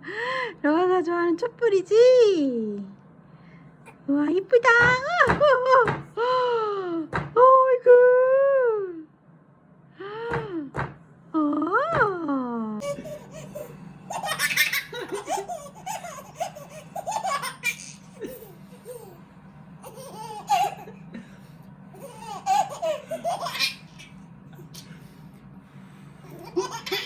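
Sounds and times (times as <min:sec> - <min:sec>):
baby laughing: 0:12.8 - 0:19.2, 0:19.8 - 0:21.0, 0:22.0 - 0:24.2, 0:26.3 - 0:27.0.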